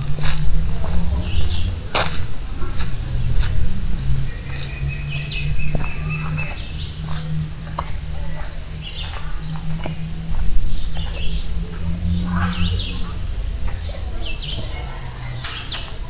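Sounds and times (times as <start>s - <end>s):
birds chirping and whistling: 0.0s - 16.0s
low steady rumble: 0.0s - 16.0s.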